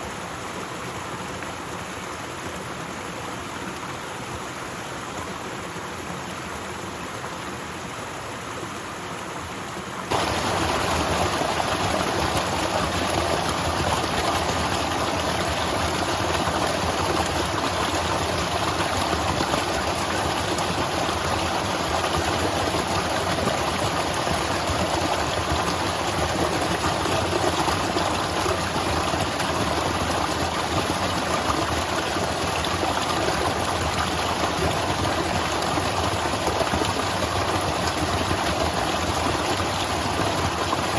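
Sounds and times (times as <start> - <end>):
waterfall rushing: 10.1 - 40.9.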